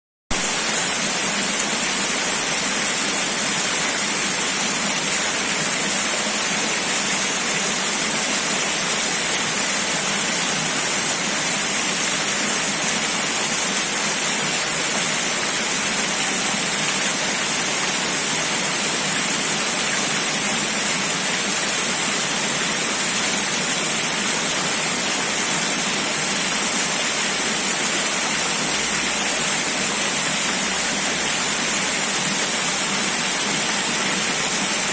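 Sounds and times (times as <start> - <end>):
rushing water: 0.3 - 34.9.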